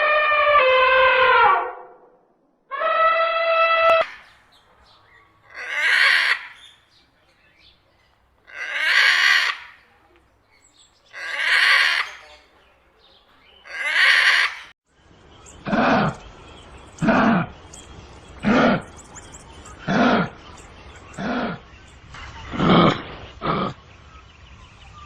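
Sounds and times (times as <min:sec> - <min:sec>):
bird screeching: 0:05.5 - 0:06.8.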